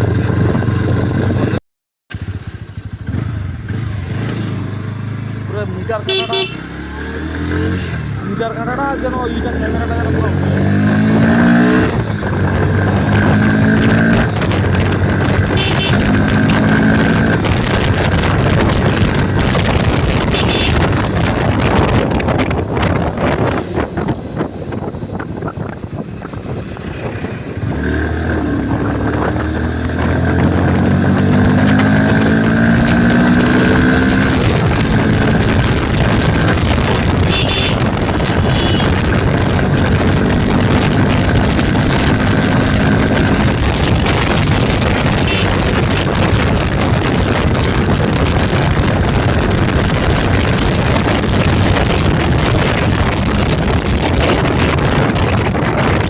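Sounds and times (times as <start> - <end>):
wind rush on microphone: 0.0 - 1.6, 7.2 - 56.0
motorcycle engine accelerating: 0.0 - 56.0.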